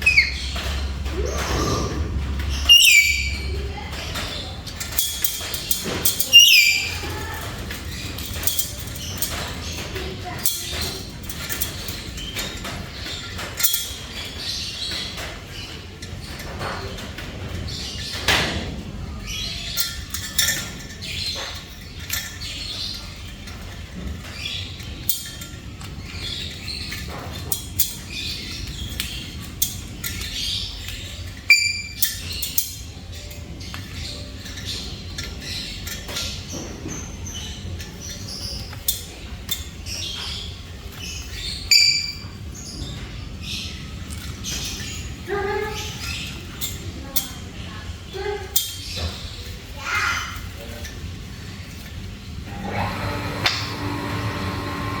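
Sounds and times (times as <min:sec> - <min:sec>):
parrot squawking and chattering: 0:00.0 - 0:03.8
parrot chirps and whistles: 0:02.7 - 0:03.5.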